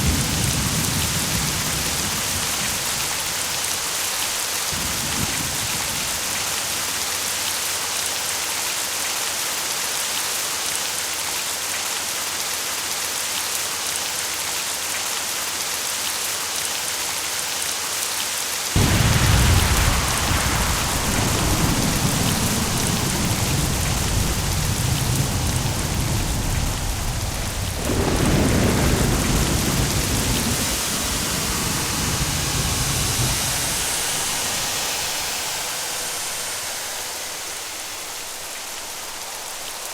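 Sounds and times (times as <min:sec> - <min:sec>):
thunder clap and rumble: 0:00.0 - 0:07.5, 0:18.8 - 0:39.9
steady rain: 0:00.0 - 0:39.9.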